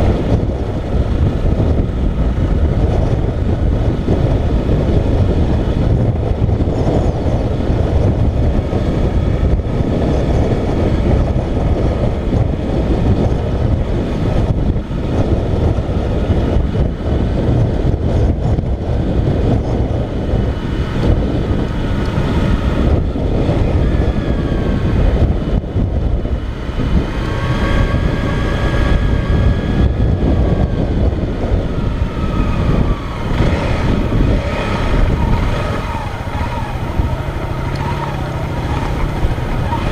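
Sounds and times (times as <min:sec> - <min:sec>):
motorcycle engine: 0:00.0 - 0:39.9
wind on helmet microphone: 0:00.0 - 0:39.9.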